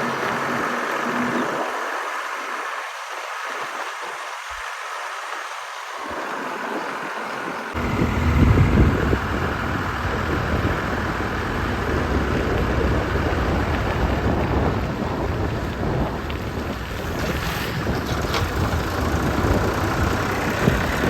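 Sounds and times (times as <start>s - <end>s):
tractor engine running: 0.0s - 2.2s, 6.1s - 21.0s
wind noise on microphone: 6.0s - 21.0s.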